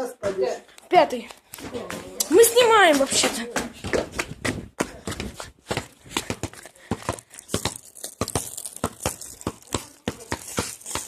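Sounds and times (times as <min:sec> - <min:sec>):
campfire crackling: 0:07.3 - 0:11.0.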